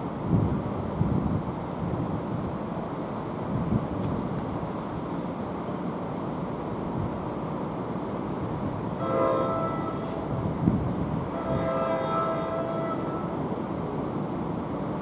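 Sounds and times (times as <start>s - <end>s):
rail rumble: 0.0s - 15.0s
train horn blasts: 9.0s - 10.4s, 11.2s - 13.5s.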